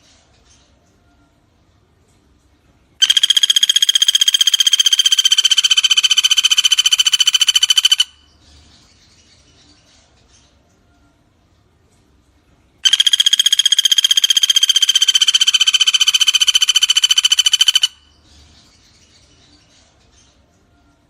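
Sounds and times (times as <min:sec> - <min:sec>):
woodpecker rattling call: 0:03.0 - 0:08.3, 0:12.8 - 0:18.2.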